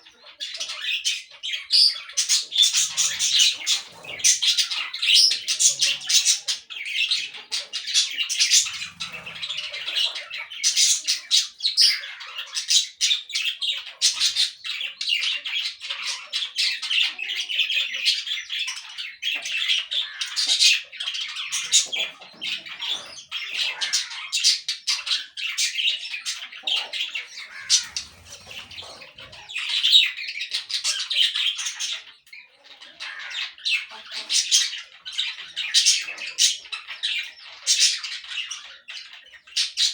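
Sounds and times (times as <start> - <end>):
parakeets chattering and squawking: 0.0 - 39.9.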